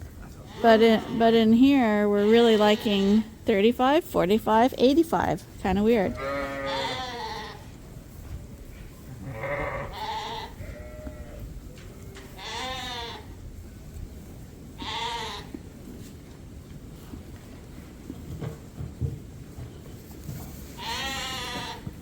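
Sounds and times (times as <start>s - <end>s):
lambs bleating: 0.4s - 3.4s, 6.0s - 7.7s, 9.2s - 13.3s, 14.8s - 15.6s, 20.7s - 22.0s.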